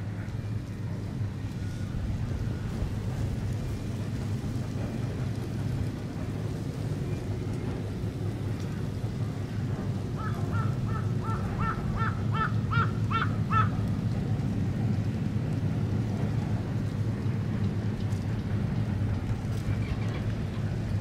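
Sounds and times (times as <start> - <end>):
bird calling: 10.2 - 13.8.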